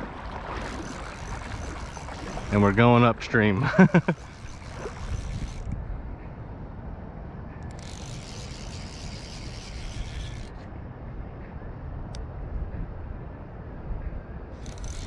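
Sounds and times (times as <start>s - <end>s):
steady low rumble: 0.0s - 8.4s, 9.9s - 14.7s
fishing reel ratchet buzzing: 0.6s - 2.8s, 3.8s - 5.8s, 7.6s - 10.6s, 14.6s - 15.0s.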